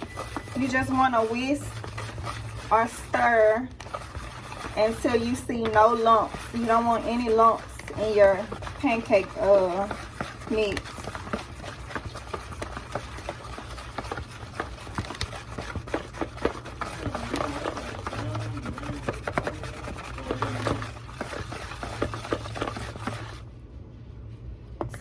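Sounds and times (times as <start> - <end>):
whisk clicking against bowl: 0.0 - 23.4
wet batter stirring: 0.0 - 23.6.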